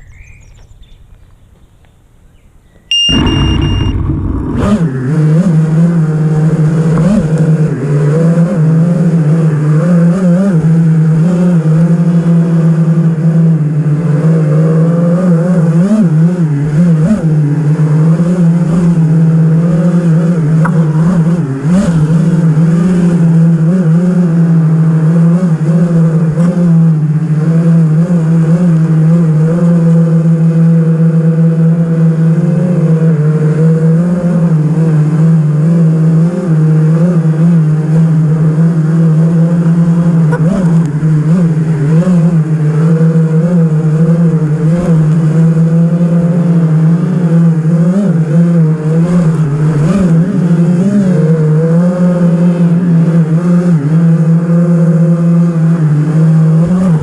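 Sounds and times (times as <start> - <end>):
drone motors and propellers whining: 2.9 - 5.2.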